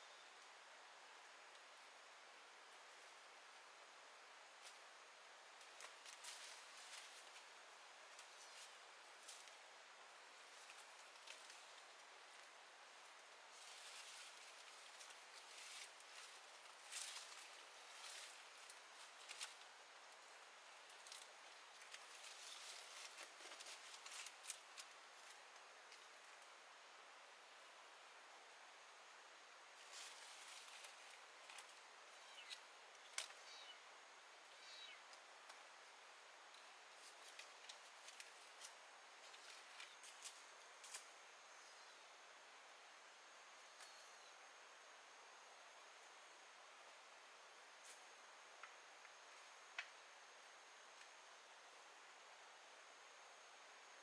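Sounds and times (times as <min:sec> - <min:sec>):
soft hiss: 0:00.0 - 0:54.0
small clicks and rustles: 0:05.5 - 0:09.7, 0:10.3 - 0:26.6, 0:29.8 - 0:33.7, 0:36.4 - 0:41.2.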